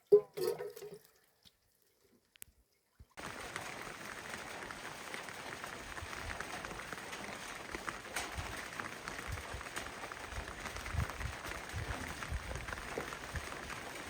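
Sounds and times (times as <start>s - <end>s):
rain hissing and pattering: 3.2s - 14.0s.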